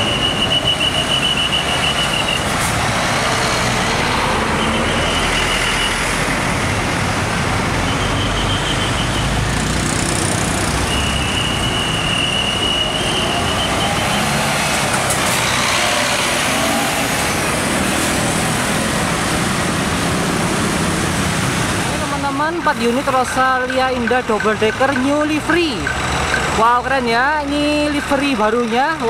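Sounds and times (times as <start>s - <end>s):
bus diesel engines passing: 0.0s - 29.0s
street traffic: 0.0s - 29.0s
motorcycle: 2.9s - 22.2s.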